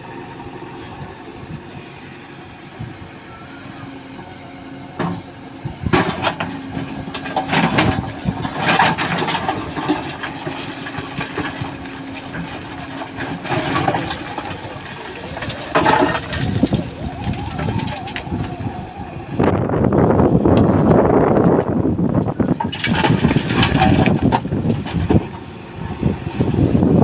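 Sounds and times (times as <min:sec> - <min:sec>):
diesel engine running: 0:00.0 - 0:27.0
stones crashing into metal trolley: 0:05.9 - 0:18.6, 0:22.5 - 0:25.4.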